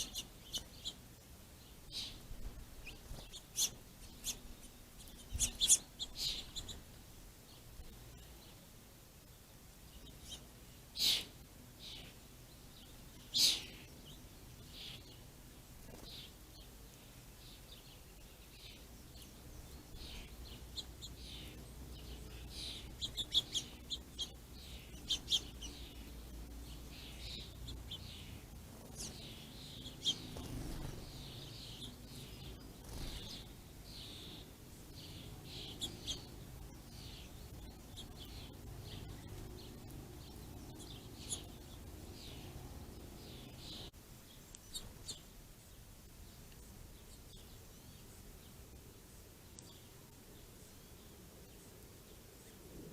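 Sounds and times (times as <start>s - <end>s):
faint low rumble: 0.0s - 52.9s
small songbirds chirping: 0.0s - 52.9s.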